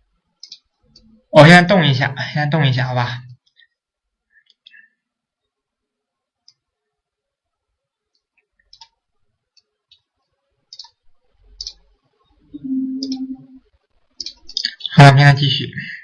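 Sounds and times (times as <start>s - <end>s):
computer mouse clicks: 0.4s - 1.1s, 8.1s - 10.1s, 10.7s - 11.0s, 11.6s - 11.8s, 13.0s - 13.3s, 14.2s - 14.7s
low steady hum: 11.0s - 14.8s.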